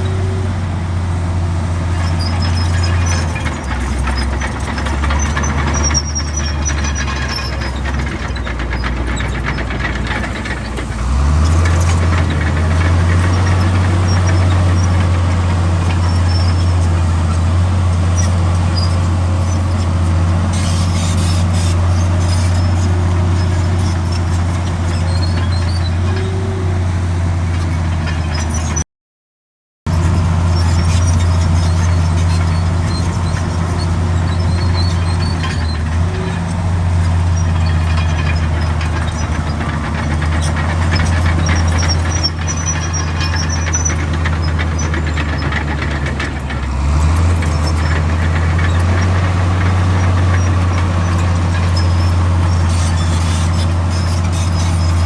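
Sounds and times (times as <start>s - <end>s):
track squeaks: 0.0s - 0.7s, 1.8s - 28.8s, 29.9s - 55.0s
bulldozer diesel engine running: 0.0s - 28.8s, 29.9s - 55.0s.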